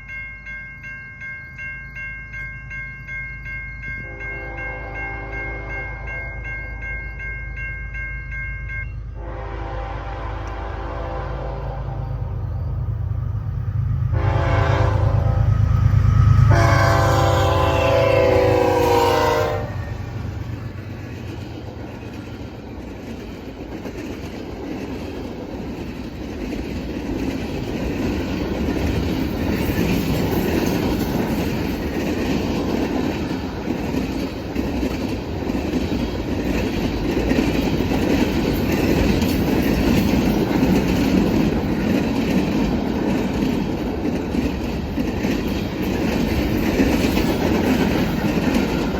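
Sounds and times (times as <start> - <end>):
locomotive horn blasts: 4.0 - 6.4, 9.2 - 12.4, 14.1 - 20.1
train wheels clattering on rails: 13.4 - 48.9.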